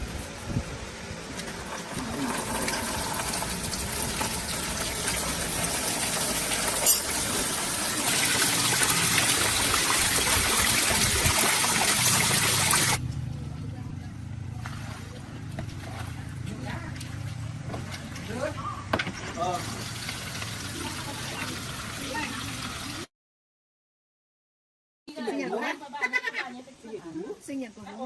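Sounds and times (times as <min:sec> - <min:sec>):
spraying water rushing: 0:00.0 - 0:13.0, 0:19.4 - 0:23.1.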